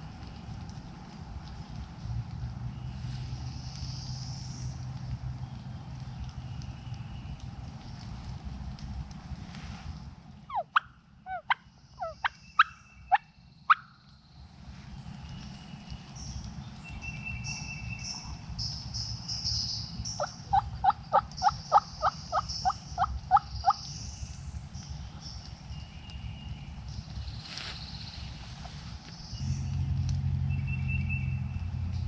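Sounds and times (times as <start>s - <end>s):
songbirds singing: 2.7s - 8.1s, 10.2s - 32.0s
wild turkey calling: 10.5s - 13.9s, 20.0s - 23.9s.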